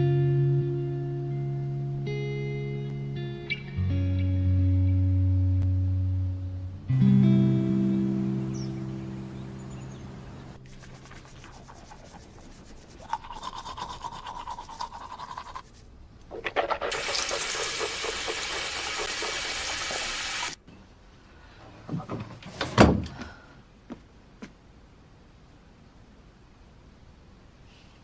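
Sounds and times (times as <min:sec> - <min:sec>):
rubbing or scrubbing: 0:10.6 - 0:20.1
water running: 0:16.8 - 0:20.6.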